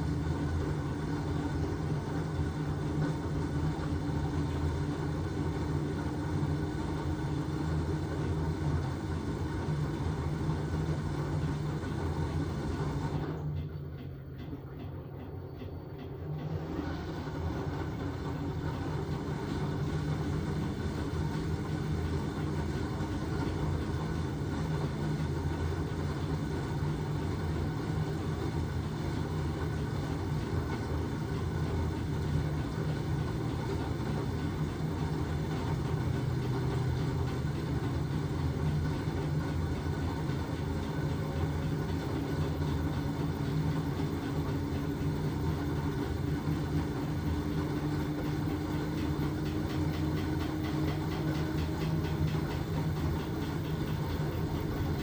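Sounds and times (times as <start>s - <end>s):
washing machine motor hum: 0.0s - 55.0s.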